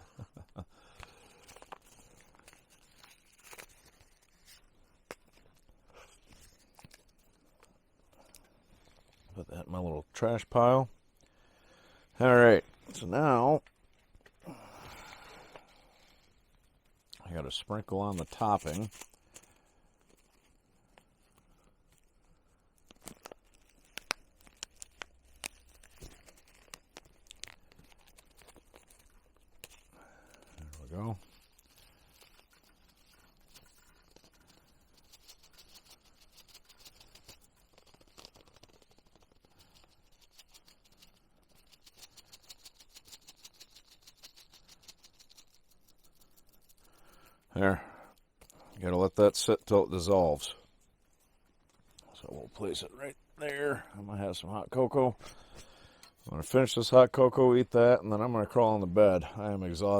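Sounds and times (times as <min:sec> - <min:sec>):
soft rustles: 0:00.0 - 0:09.4, 0:12.1 - 0:58.0
plastic packet crinkling: 0:00.6 - 0:09.3, 0:15.1 - 0:47.5
topping shaken into pouch: 0:18.0 - 0:20.6.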